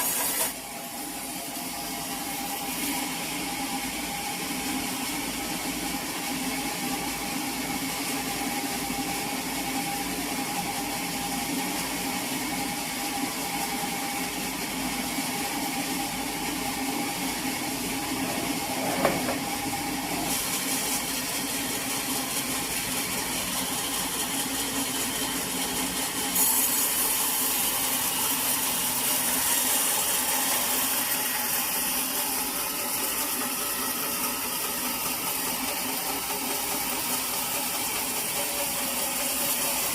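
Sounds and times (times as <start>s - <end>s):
saw cutting through log: 0.0s - 7.3s, 15.9s - 39.9s
sawmill machinery running: 0.0s - 39.9s.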